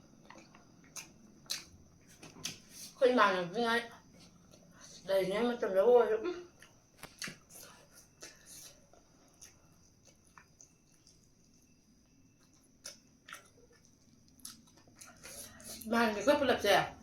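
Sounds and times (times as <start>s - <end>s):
person chewing: 0.1s - 2.9s, 6.6s - 15.8s.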